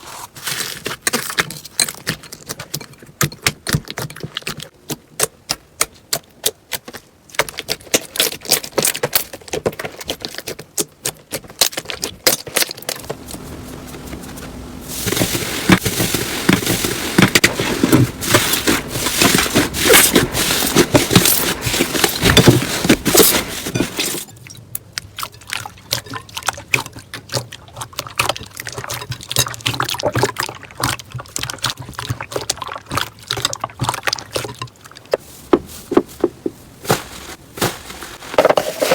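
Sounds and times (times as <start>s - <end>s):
slime squelching: 13.0s - 38.9s.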